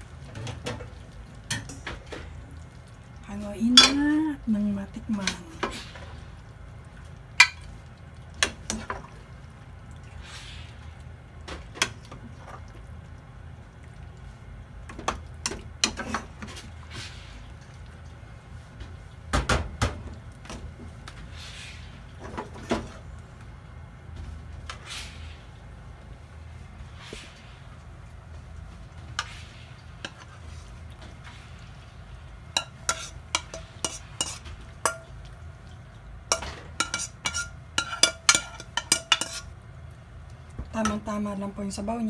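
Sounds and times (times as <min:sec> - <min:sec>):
low steady hum: 0:00.0 - 0:42.0
metal spoon clinking on pot: 0:36.3 - 0:39.5.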